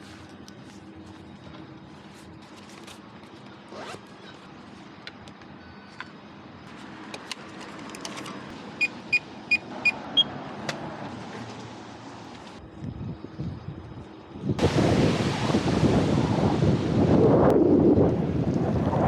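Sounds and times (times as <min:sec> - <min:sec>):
street traffic: 0:00.0 - 0:14.5
electronic keypad beeps: 0:08.8 - 0:10.3.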